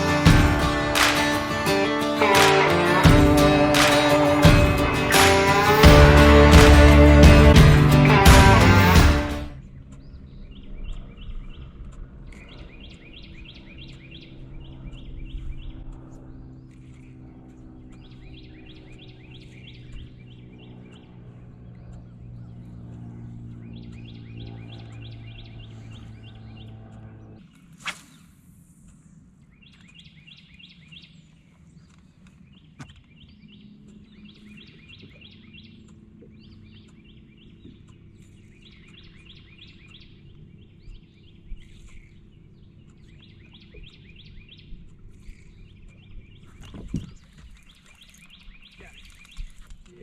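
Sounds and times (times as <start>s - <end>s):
low motor hum: 0.0s - 27.4s
birds singing trills: 10.0s - 27.0s, 29.4s - 50.0s
sharp swish: 27.7s - 28.4s.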